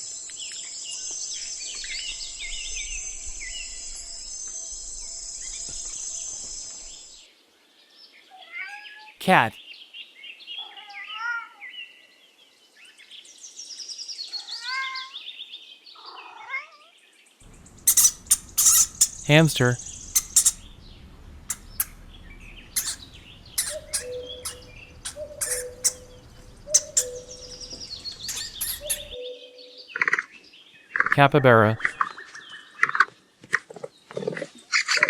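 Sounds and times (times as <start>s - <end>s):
hamster squeaking: 17.5s - 29.2s.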